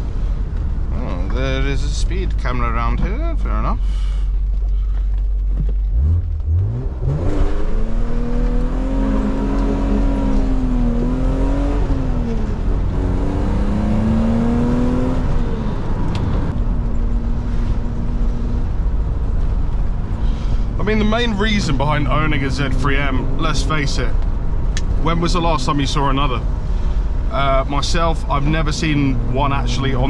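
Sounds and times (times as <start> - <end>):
car engine accelerating: 0.0 - 30.0
tyre and road noise: 0.0 - 30.0.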